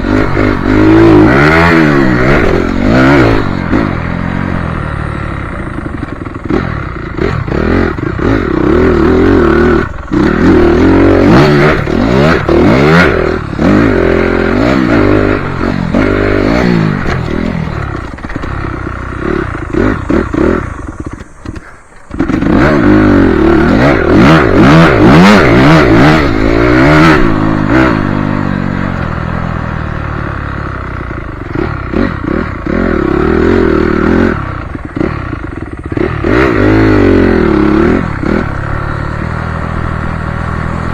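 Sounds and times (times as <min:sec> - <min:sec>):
motocross bike engine revving: 0:00.0 - 0:40.9
rattling and clatter: 0:05.4 - 0:22.9.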